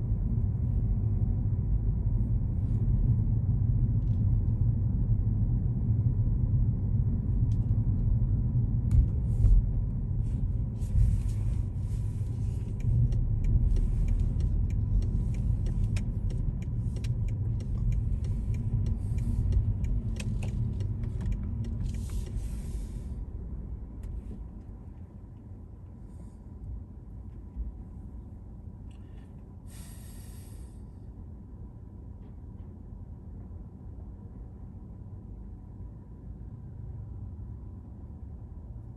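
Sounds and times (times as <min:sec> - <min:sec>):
car road and engine rumble: 0:00.0 - 0:38.9
scattered clicks: 0:12.6 - 0:22.4
hiss: 0:29.7 - 0:30.8.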